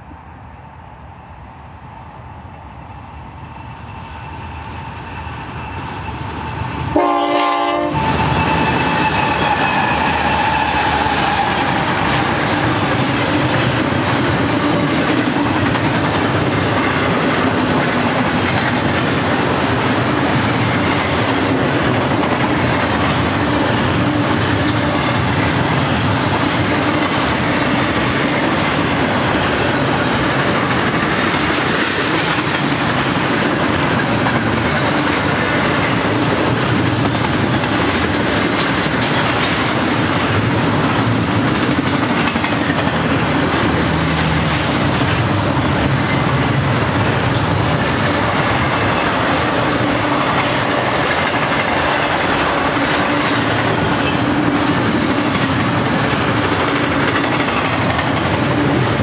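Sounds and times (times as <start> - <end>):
train wheels rumbling on rail: 0.0 - 59.0
train horn blast: 6.9 - 11.8.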